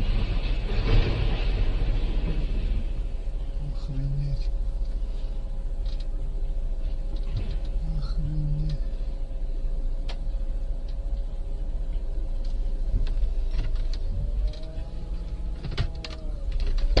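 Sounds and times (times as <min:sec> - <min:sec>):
steady hum: 0:00.0 - 0:17.0
clicks and knocks: 0:15.5 - 0:17.0.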